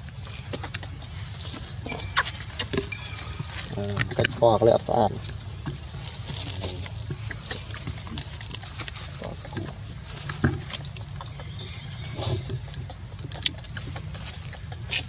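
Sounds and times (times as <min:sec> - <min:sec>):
monkeys grunting: 0:00.0 - 0:15.0
clicks and rustles: 0:00.1 - 0:11.6
high squeak: 0:01.8 - 0:03.5.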